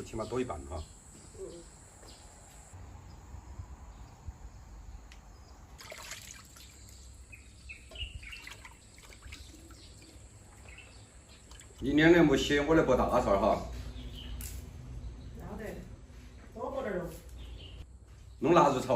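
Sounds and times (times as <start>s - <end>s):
bird chirps: 0.0s - 3.2s, 6.6s - 11.9s, 13.7s - 15.5s, 17.3s - 18.4s
water trickling and dripping: 5.7s - 12.3s.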